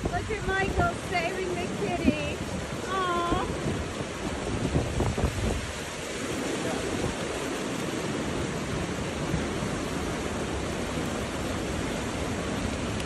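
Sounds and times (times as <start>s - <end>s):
hurricane wind: 0.0s - 13.0s
rain: 0.0s - 13.0s.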